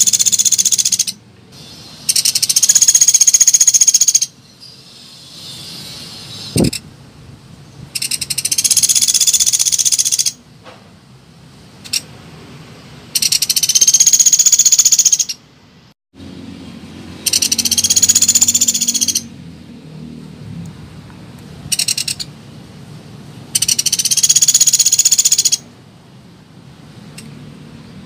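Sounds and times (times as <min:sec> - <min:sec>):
woodpecker rattling trills: 0:00.0 - 0:01.2, 0:02.0 - 0:04.4, 0:08.0 - 0:10.4, 0:13.2 - 0:15.4, 0:17.2 - 0:19.3, 0:21.7 - 0:22.3, 0:23.5 - 0:25.6.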